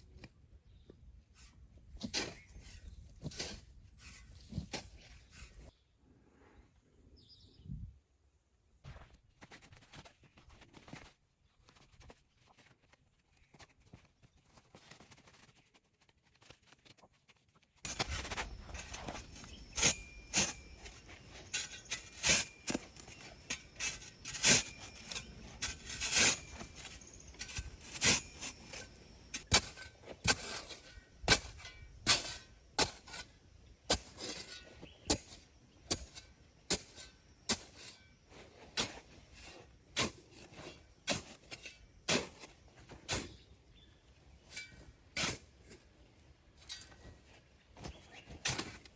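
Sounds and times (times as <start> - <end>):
hand tool striking: 17.9 - 33.3.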